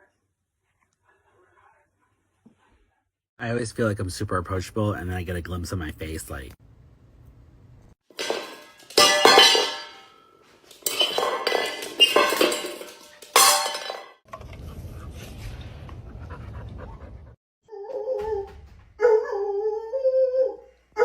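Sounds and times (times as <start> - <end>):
hard objects clattering: 8.1 - 14.4.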